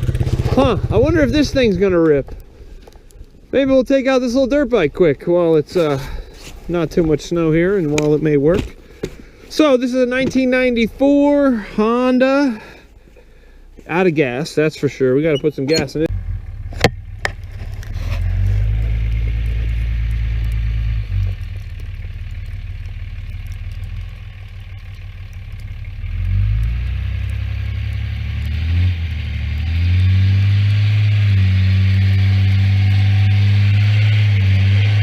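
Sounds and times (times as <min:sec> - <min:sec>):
vehicle engine running: 0:00.0 - 0:03.4, 0:15.7 - 0:35.0.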